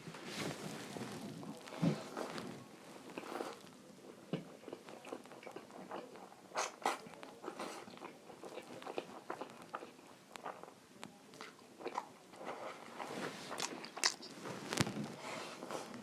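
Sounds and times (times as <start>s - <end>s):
person chewing: 4.3s - 10.8s, 11.4s - 15.1s.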